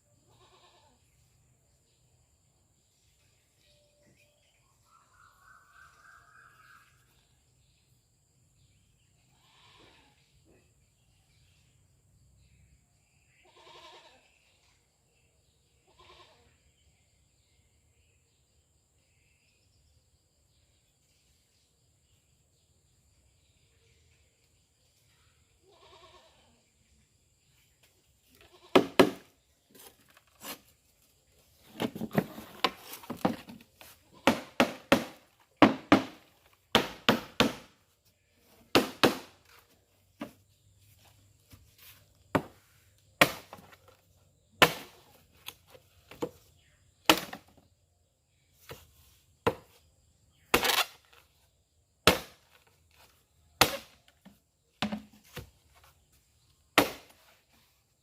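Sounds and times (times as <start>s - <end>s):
faint bleat-like call: 0.2s - 1.2s, 9.2s - 10.7s, 13.3s - 14.6s, 15.8s - 16.6s, 25.6s - 26.8s, 28.4s - 28.8s
cleaver chopping: 28.8s - 29.3s, 34.2s - 37.7s, 38.7s - 39.3s, 43.2s - 43.7s, 44.6s - 45.0s, 47.1s - 47.4s, 50.5s - 51.0s, 52.0s - 52.4s, 53.6s - 54.0s, 56.8s - 57.1s.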